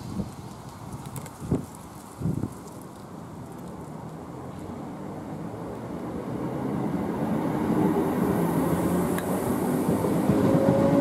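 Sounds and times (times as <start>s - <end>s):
passenger train rumbling past: 4.9s - 11.0s.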